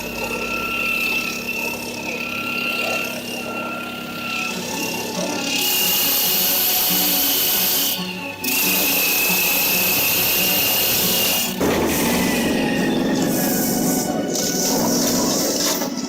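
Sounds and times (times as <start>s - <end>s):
small engine at high revs: 0.0s - 16.0s
background music: 4.5s - 16.0s.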